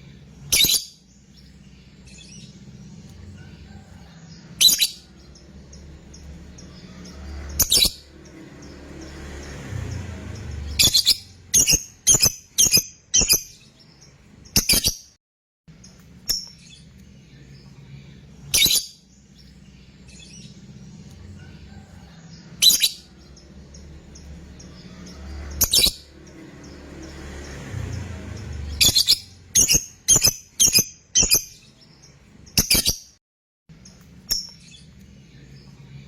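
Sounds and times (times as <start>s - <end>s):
lovebird shrill calls: 4.6s - 5.0s, 18.5s - 19.0s.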